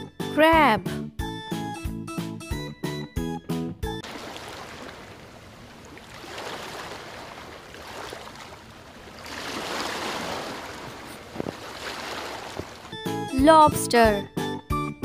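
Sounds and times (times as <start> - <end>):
water washing over muddy shore: 4.0 - 13.0.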